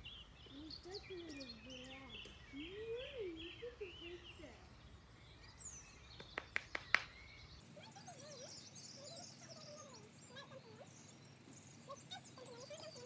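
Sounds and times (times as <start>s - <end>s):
birdsong: 0.0s - 13.0s
sharp clicks: 6.2s - 7.2s.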